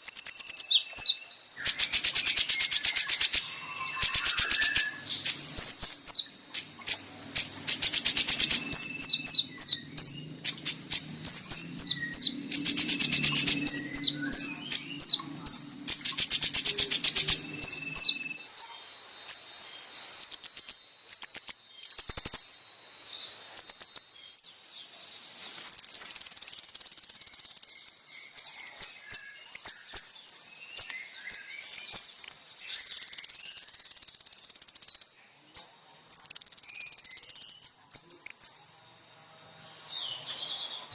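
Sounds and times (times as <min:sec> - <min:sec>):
very high bird trills: 0:00.0 - 0:18.5
sunbird chirps and twitters: 0:00.0 - 0:40.9.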